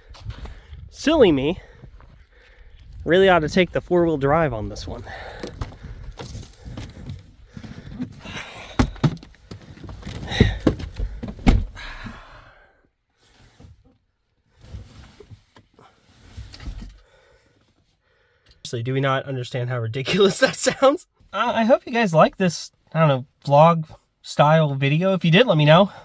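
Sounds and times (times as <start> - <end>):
thuds and knocks: 8.7 - 11.9.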